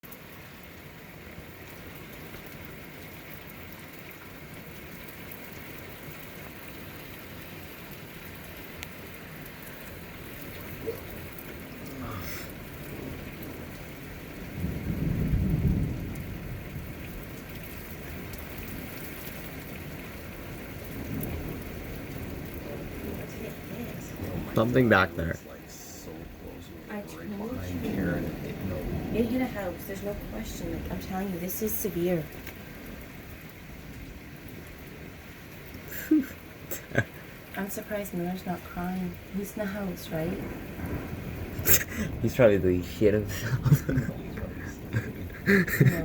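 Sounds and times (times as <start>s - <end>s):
steady rain falling: 0.0s - 46.0s
low rumble of thunder: 9.4s - 46.0s.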